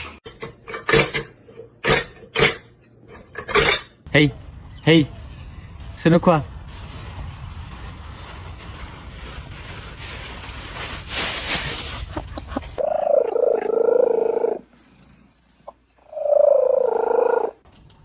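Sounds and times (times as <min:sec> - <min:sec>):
cat purring: 0:12.6 - 0:17.6
cat meowing: 0:12.8 - 0:14.7, 0:16.0 - 0:17.6.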